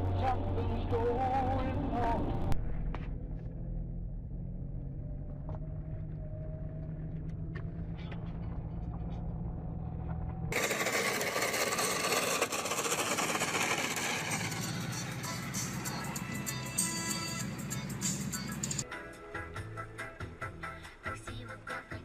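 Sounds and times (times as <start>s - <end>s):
car rumble from inside: 0.2s - 10.6s
hissy road and traffic noise: 4.0s - 20.8s.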